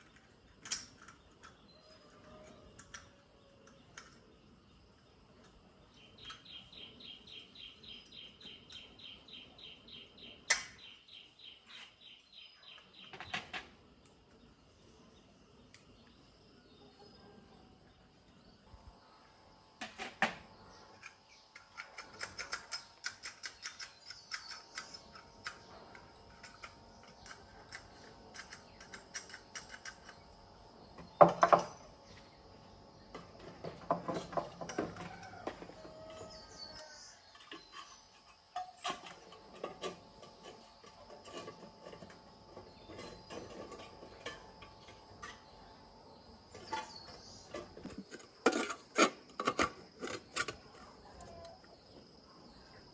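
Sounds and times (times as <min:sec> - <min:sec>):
clicks and clinks of small parts: 0:00.0 - 0:04.3, 0:20.9 - 0:30.3.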